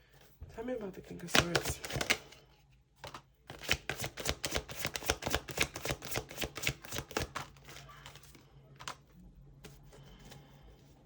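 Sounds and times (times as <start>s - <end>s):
cards being shuffled: 1.3s - 2.4s, 3.0s - 10.4s.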